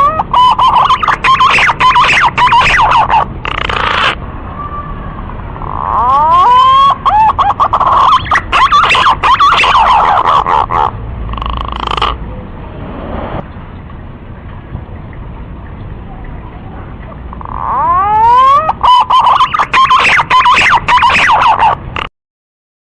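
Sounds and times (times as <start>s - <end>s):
pigeon whistling song: 0.0s - 4.2s, 5.6s - 12.2s, 17.4s - 21.8s.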